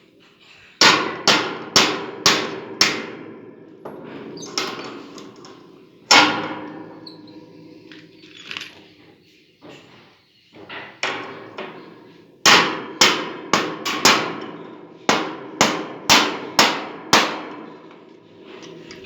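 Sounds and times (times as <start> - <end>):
hammer striking hard: 0.8 - 3.1, 12.5 - 14.4, 15.1 - 17.5.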